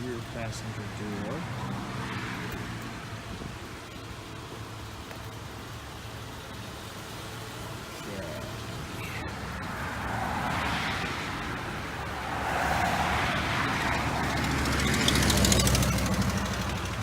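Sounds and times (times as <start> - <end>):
passing vehicle rushing: 0.0 - 3.9, 8.1 - 17.0.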